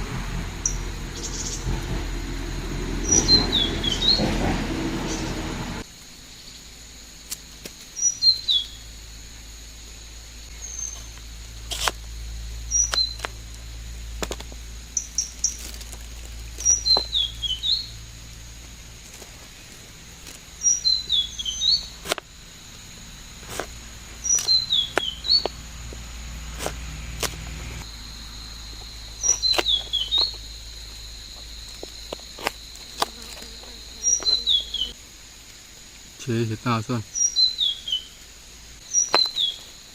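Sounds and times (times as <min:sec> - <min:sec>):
high insect drone: 0:00.0 - 0:39.9
songbird whistling: 0:00.6 - 0:01.7, 0:03.0 - 0:04.4, 0:08.0 - 0:08.8, 0:12.7 - 0:13.3, 0:16.6 - 0:18.0, 0:20.6 - 0:22.0, 0:24.2 - 0:25.6, 0:29.2 - 0:30.4.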